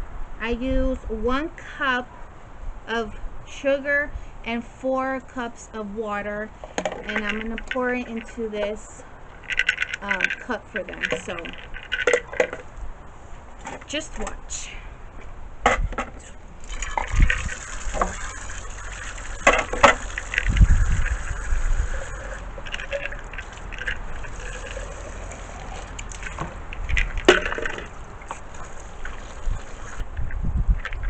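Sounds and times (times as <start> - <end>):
containers knocking and clinking: 6.7 - 8.8, 9.4 - 12.7, 16.6 - 29.5
liquid pouring into a cup: 16.6 - 26.5, 27.2 - 30.0.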